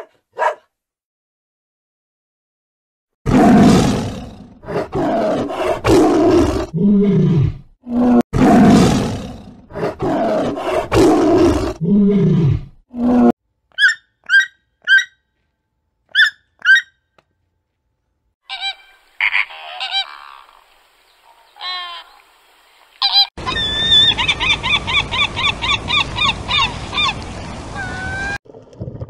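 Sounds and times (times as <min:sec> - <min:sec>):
tiger roaring and growling: 0:03.3 - 0:13.4.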